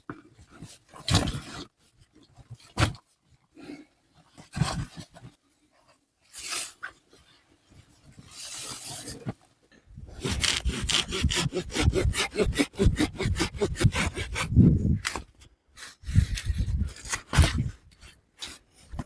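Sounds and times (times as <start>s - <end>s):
hand saw cutting wood: 10.1s - 14.7s.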